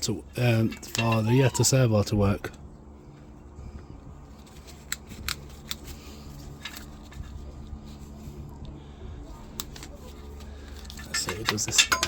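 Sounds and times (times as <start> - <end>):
low steady hum: 0.0 - 12.0
hand tools clicking on metal: 0.6 - 1.6, 10.8 - 12.0.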